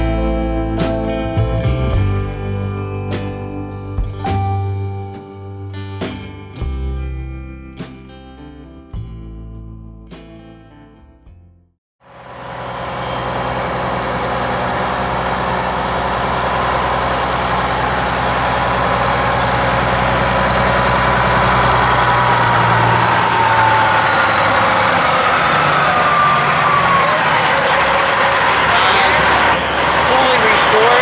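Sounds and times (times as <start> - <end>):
diesel truck engine running: 0.0 - 6.9, 12.0 - 31.0
engine whine: 12.0 - 31.0.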